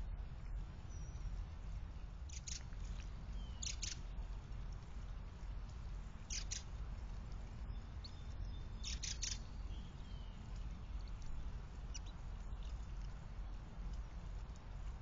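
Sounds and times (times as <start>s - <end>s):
steady low hum: 0.0s - 15.0s
sharp bird calls: 2.2s - 4.1s, 6.2s - 6.8s, 7.7s - 11.2s, 11.8s - 12.9s.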